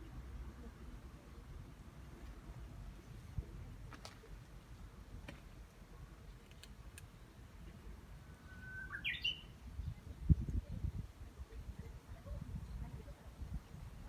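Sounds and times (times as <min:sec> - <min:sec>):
faint clicks: 0:06.3 - 0:07.1
bird whistle rising in pitch: 0:08.4 - 0:09.5.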